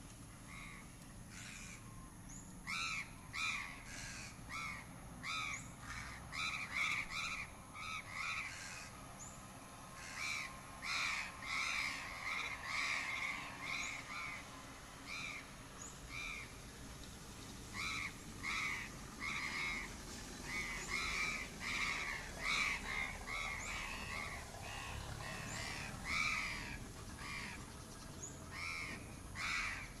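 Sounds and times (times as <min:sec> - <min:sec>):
crows cawing: 0:00.5 - 0:01.8, 0:02.7 - 0:09.0, 0:10.0 - 0:14.4, 0:17.8 - 0:27.6, 0:28.5 - 0:30.0.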